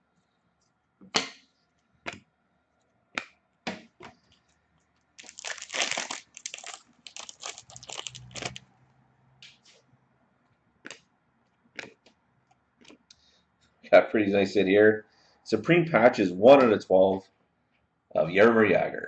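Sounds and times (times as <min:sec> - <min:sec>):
card pack wrapper crinkling: 0:05.2 - 0:08.6.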